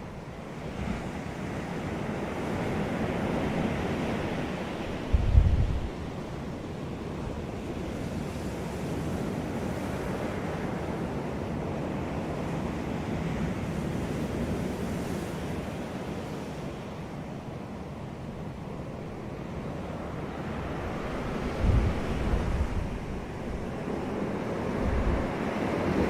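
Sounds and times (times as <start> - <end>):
ocean surf washing onto beach: 0.0 - 26.0
wind noise on microphone: 3.5 - 6.5, 20.6 - 26.0.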